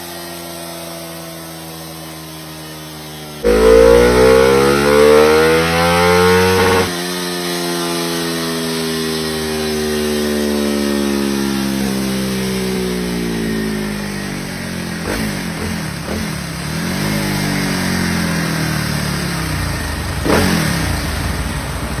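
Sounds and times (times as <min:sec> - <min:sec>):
motorcycle engine revving: 0:03.4 - 0:07.0, 0:20.1 - 0:21.7.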